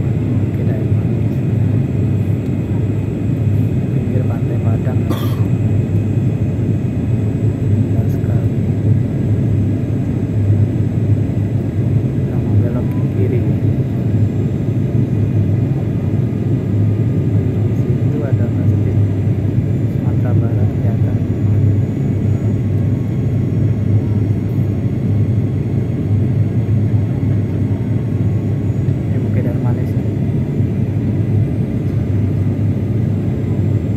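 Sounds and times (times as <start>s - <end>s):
airliner cabin engine rumble: 0.0s - 33.9s.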